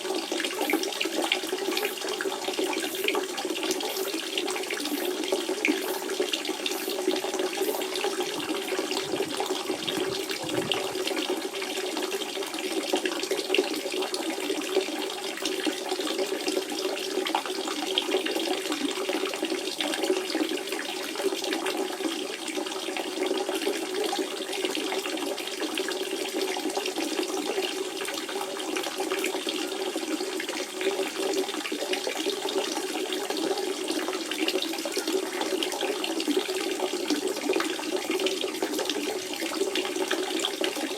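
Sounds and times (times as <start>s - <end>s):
spring water trickling: 0.2s - 14.3s.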